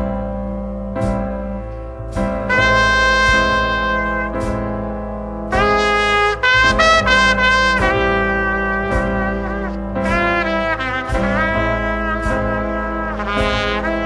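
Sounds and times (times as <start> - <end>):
piano chords: 0.0 - 14.0
wavering brass line: 2.5 - 4.4
trumpet long held notes: 2.5 - 4.6, 5.5 - 14.0.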